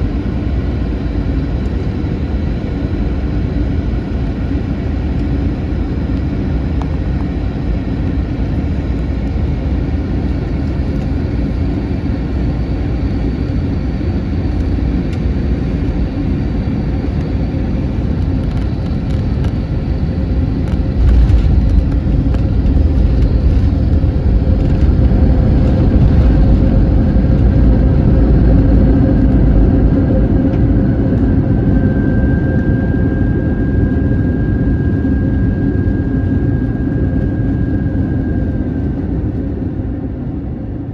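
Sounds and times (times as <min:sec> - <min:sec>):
airplane cabin rumble: 0:00.0 - 0:40.9
high whine: 0:15.8 - 0:37.7
jet touchdown rumble: 0:18.4 - 0:30.3.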